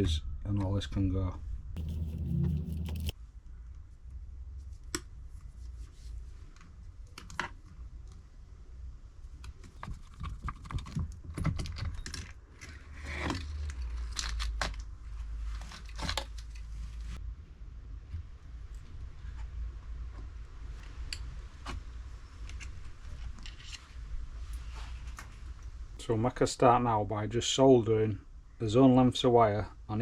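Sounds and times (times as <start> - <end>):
steady low hum: 1.8 - 3.1.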